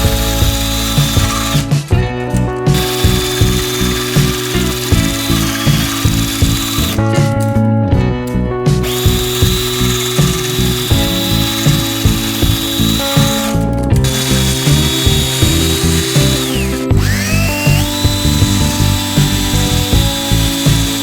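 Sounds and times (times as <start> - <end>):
power tool whining: 0.0 - 7.5, 8.8 - 21.0
music with steady beat: 0.0 - 21.0.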